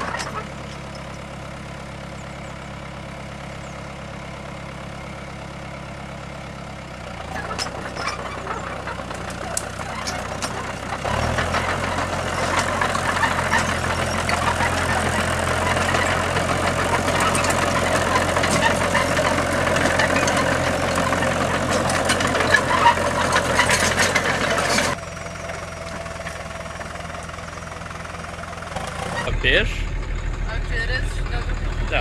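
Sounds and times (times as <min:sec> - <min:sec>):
vehicle engine clattering: 0:00.0 - 0:32.0
smooth engine hum: 0:24.3 - 0:32.0.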